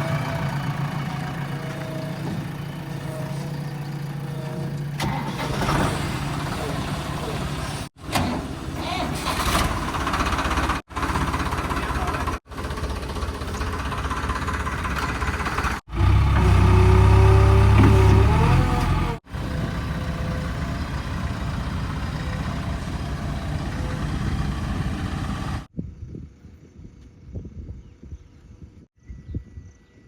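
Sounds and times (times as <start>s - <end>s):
steady engine tone: 0.0s - 5.5s, 9.8s - 25.7s
heavy machinery diesel engines running: 0.0s - 25.7s.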